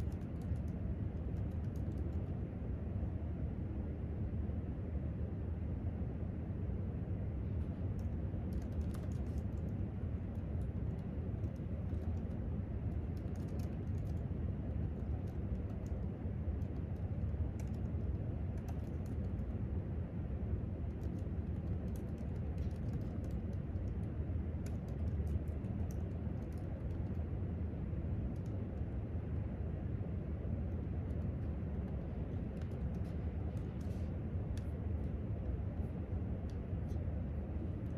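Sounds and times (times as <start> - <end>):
typing on laptop keyboard: 0.0 - 2.4, 7.8 - 19.6, 20.8 - 27.3, 31.1 - 35.1
low room hum: 0.0 - 37.9.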